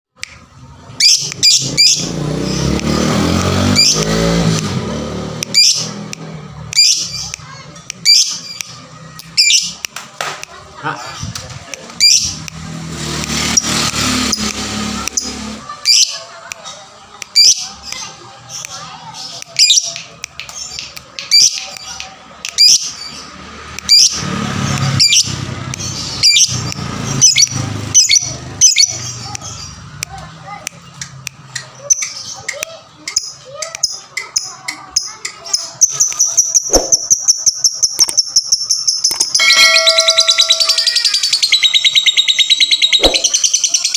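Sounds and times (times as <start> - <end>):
lovebird chirping: 35.0 - 43.9.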